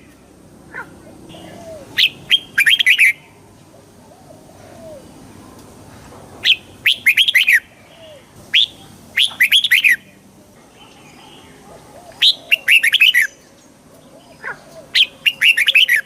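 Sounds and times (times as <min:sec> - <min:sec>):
faint low bird calls: 0:00.0 - 0:16.0
bird singing whistled notes: 0:01.3 - 0:03.2, 0:06.4 - 0:10.1, 0:12.1 - 0:16.0.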